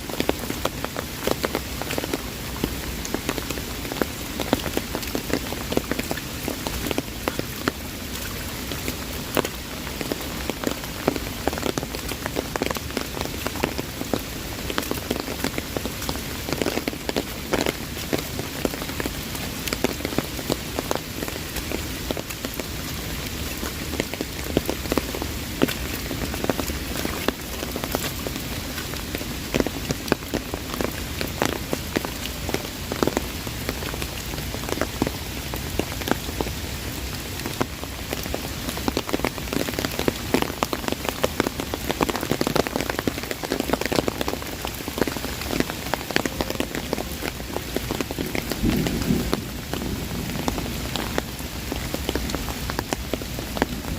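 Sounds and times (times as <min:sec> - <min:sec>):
heavy rain on umbrella: 0:00.0 - 0:53.9.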